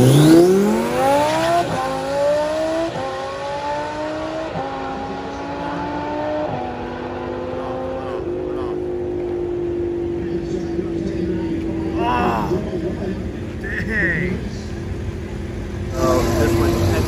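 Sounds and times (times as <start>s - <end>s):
sports car accelerating hard: 0.0s - 13.6s.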